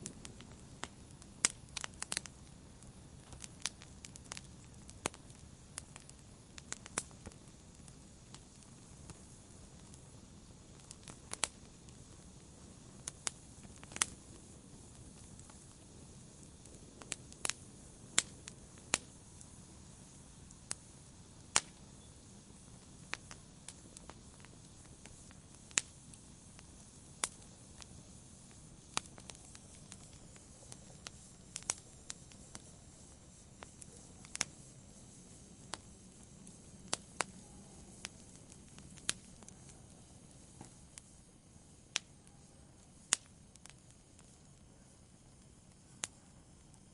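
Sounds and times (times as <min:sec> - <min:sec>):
fire crackling and popping: 0:00.0 - 0:46.9
low steady hiss: 0:00.0 - 0:46.9.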